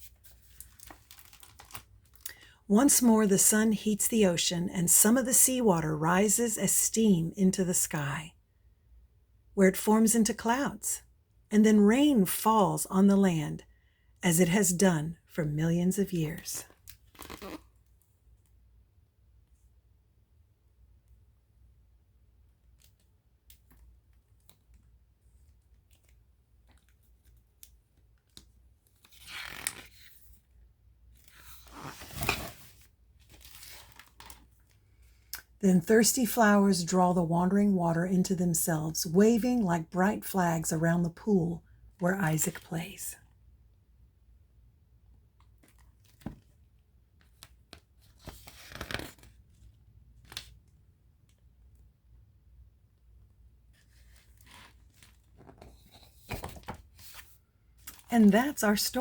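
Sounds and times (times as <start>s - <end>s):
book pages rustling and turning: 0.0s - 2.2s, 16.7s - 18.5s, 25.4s - 30.5s, 31.1s - 35.3s, 45.4s - 50.7s, 53.7s - 58.3s.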